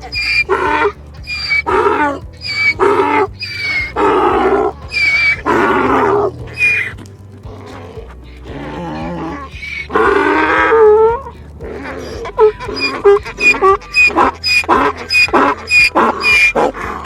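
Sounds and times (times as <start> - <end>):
background music: 0.0 - 17.0
donkey braying: 0.0 - 17.0.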